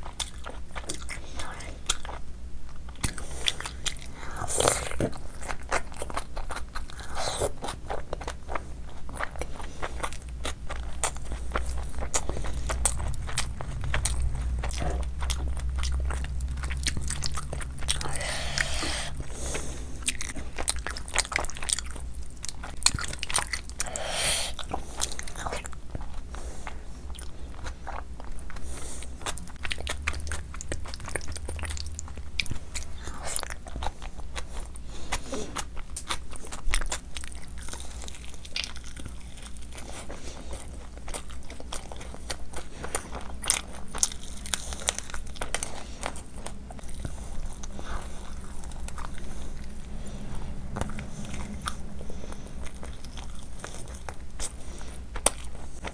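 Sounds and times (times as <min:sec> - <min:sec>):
chewing and lip smacking: 0:00.0 - 0:55.9
steady low hum: 0:00.0 - 0:55.9.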